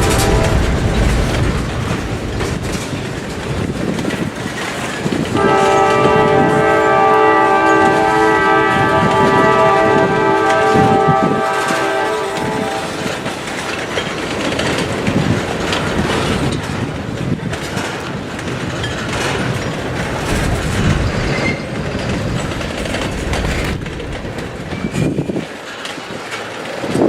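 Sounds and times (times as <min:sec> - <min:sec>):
train horn: 0:00.0 - 0:01.2, 0:05.3 - 0:13.4
railcars rumbling past: 0:00.0 - 0:27.0
wheels clicking over rail joints: 0:00.0 - 0:27.0.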